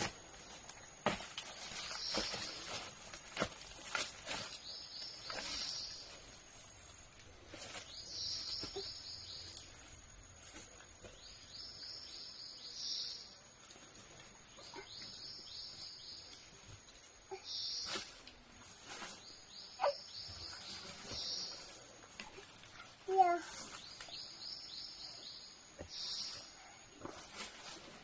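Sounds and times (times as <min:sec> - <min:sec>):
crackles: 0:00.0 - 0:11.2.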